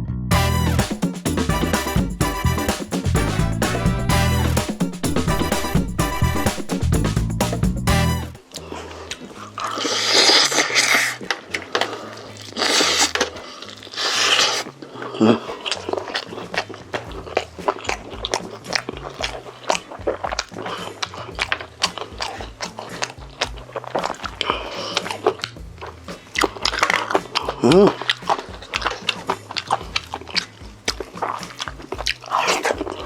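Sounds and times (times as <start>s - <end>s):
background music: 0.0s - 33.0s
crunching and chewing: 8.4s - 33.0s.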